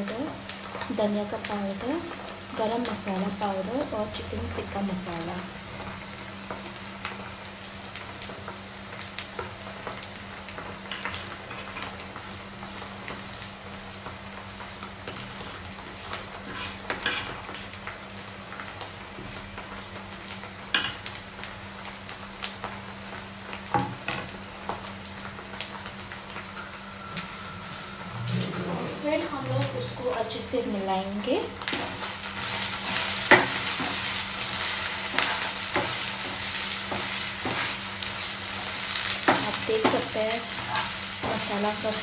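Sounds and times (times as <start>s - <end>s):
food sizzling in oil: 0.0s - 42.0s
utensils scraping a pan: 16.4s - 17.6s, 39.3s - 41.5s
steady low hum: 26.1s - 34.4s.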